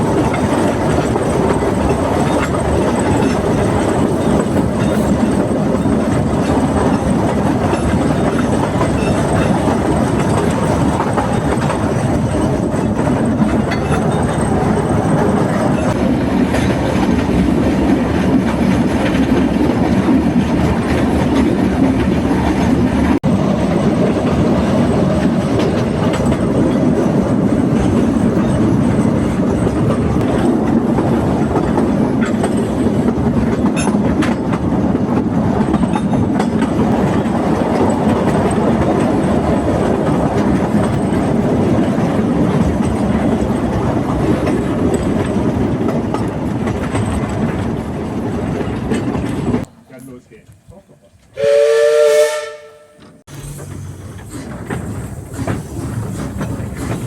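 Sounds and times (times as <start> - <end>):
clickety-clack over rail joints: 0.0 - 57.0
train wheels rumbling: 0.0 - 57.0.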